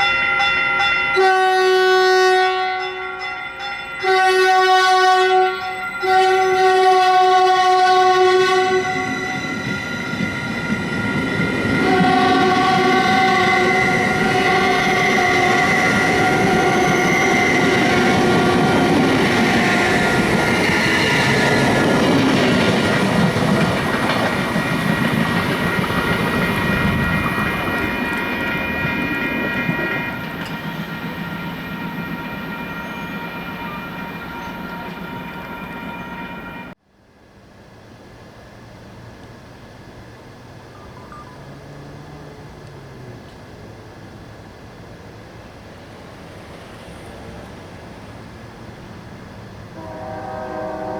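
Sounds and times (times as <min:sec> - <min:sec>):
locomotive air horn: 0:01.2 - 0:03.0, 0:04.0 - 0:09.7, 0:11.6 - 0:21.3, 0:26.4 - 0:36.8, 0:49.8 - 0:50.9
train wheels rumbling on rails: 0:06.8 - 0:36.8.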